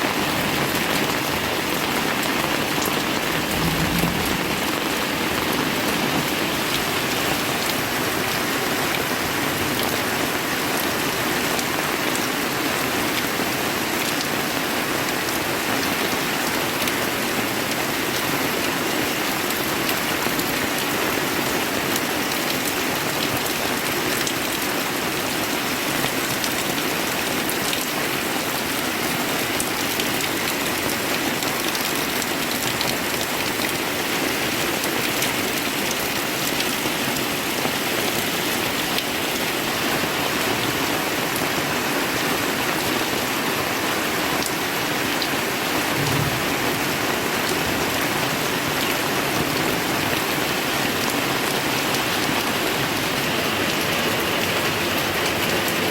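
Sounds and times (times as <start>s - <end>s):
heavy rain pouring: 0.0s - 55.9s
low thump: 3.4s - 5.1s, 46.0s - 46.9s.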